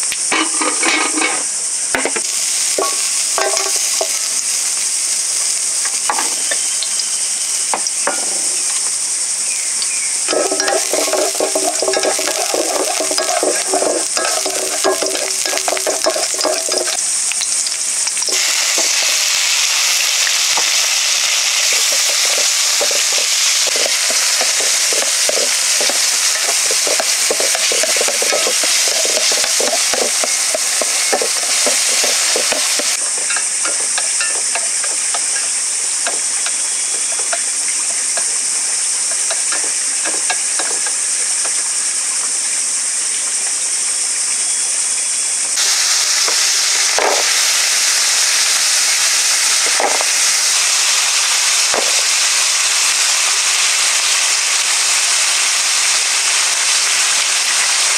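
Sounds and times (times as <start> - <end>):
food sizzling in a pan: 0.0 - 57.9
stirring taps and scrapes: 10.3 - 17.0, 21.7 - 35.4.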